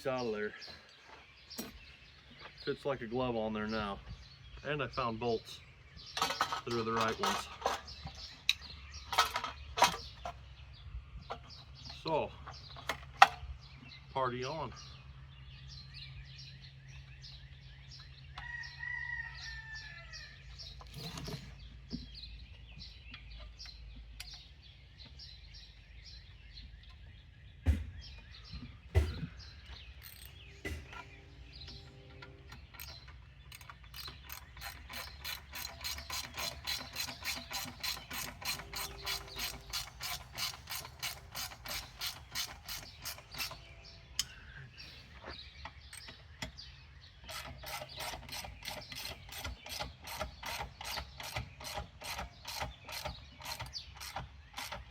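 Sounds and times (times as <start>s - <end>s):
sharp knocks: 27.6s - 29.8s, 30.6s - 31.2s
ratchet wrench clicking: 32.7s - 43.6s, 47.3s - 54.8s.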